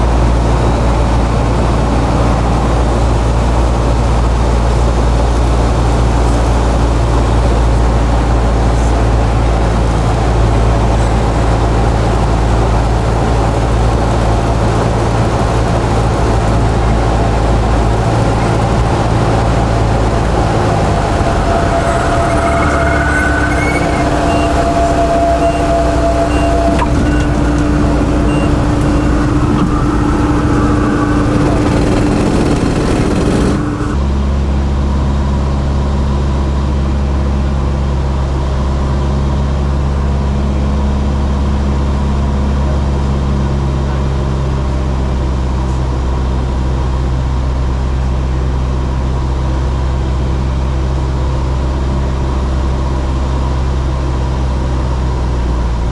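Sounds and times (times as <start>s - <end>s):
low dull hum: 0.0s - 35.2s
vehicle engine drone: 0.0s - 55.9s.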